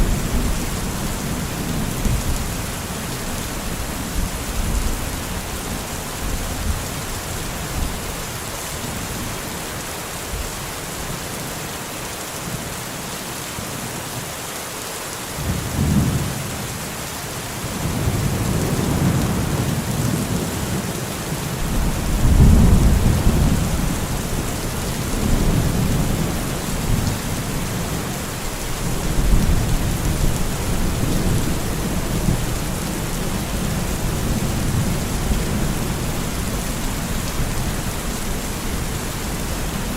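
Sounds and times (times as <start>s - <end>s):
steady rain: 0.0s - 39.9s
rolling thunder: 21.6s - 27.1s.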